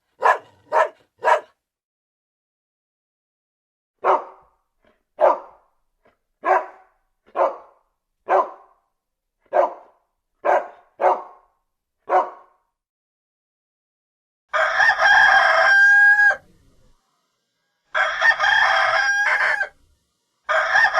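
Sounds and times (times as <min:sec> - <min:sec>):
dog barking: 0:00.0 - 0:01.6, 0:04.0 - 0:04.6, 0:05.2 - 0:05.7, 0:06.4 - 0:08.8, 0:09.4 - 0:12.7.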